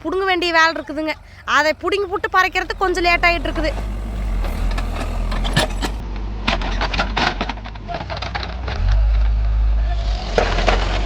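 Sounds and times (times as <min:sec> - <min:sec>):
backhoe diesel engine running: 0:00.0 - 0:08.3.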